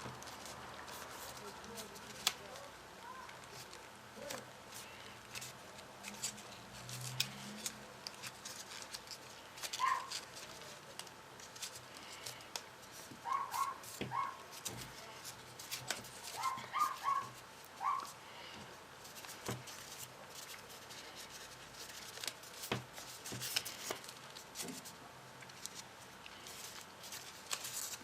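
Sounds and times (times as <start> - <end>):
paper crinkling: 0.0 - 28.0
animal whining: 13.2 - 14.4, 16.4 - 18.1.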